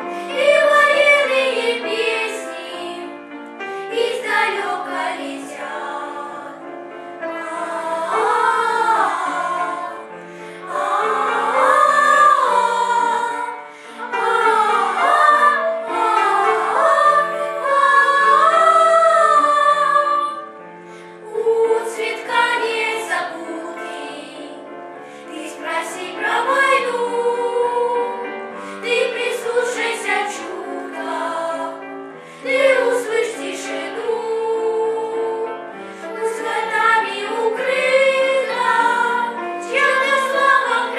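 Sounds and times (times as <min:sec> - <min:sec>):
vocal ensemble singing: 0:00.0 - 0:40.9.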